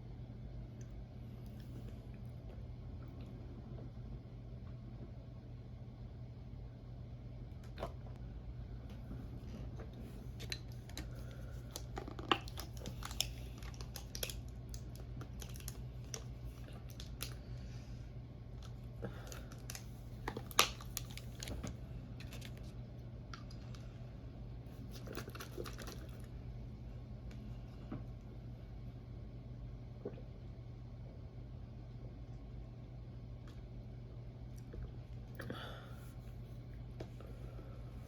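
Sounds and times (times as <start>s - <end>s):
steady low hum: 0.0s - 38.0s
chewing clicks and crackles: 10.4s - 17.4s, 24.9s - 26.3s.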